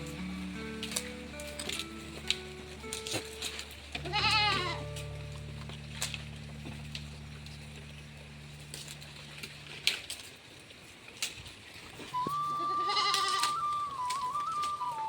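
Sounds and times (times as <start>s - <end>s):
goat bleating: 3.9s - 5.2s, 12.2s - 13.9s
steady low hum: 4.8s - 10.5s.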